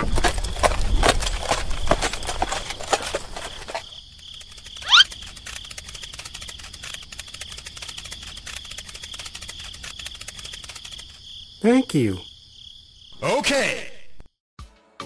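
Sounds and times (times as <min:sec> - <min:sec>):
cricket chirping: 0:00.0 - 0:14.4
scratchy clicks: 0:04.3 - 0:11.2
quick rising whistle: 0:04.8 - 0:05.1.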